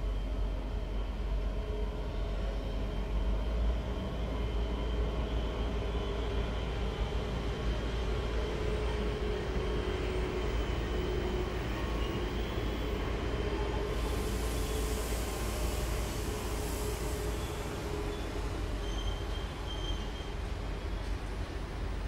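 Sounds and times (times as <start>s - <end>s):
faint steady locomotive tone: 0.0s - 22.0s
freight train rumbling past: 0.0s - 22.0s.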